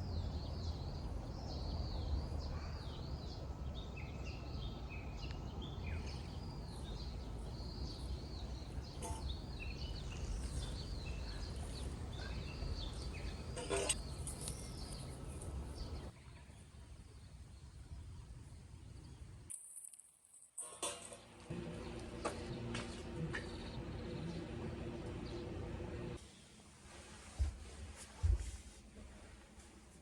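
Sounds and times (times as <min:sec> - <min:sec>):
small birds chirping: 0:00.0 - 0:17.3, 0:21.8 - 0:26.1
low outdoor rumble: 0:21.4 - 0:26.2.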